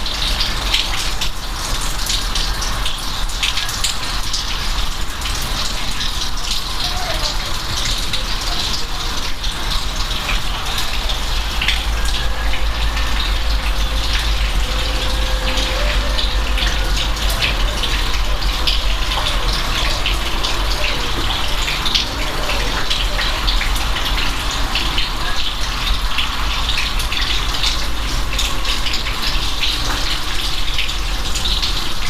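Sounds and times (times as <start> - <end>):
steady rain falling: 0.0 - 32.0
low rumble: 10.7 - 20.8.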